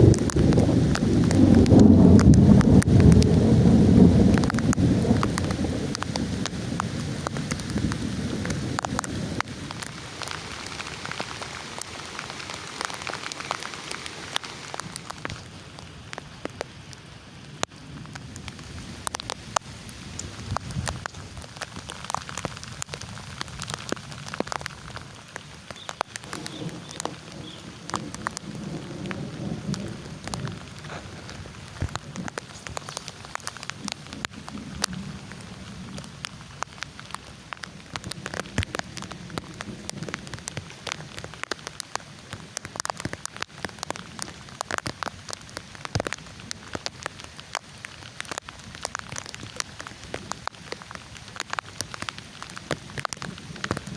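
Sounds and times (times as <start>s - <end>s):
low thunder rumble: 0.0s - 10.0s, 26.2s - 32.9s, 33.6s - 36.3s
heavy rain falling: 0.0s - 53.9s.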